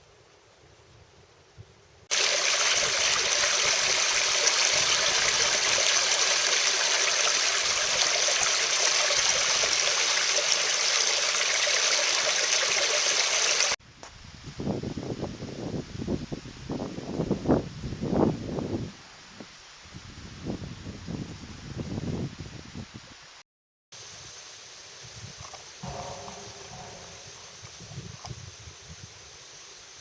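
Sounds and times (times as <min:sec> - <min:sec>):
running water rushing: 0:02.1 - 0:13.8, 0:25.8 - 0:27.6.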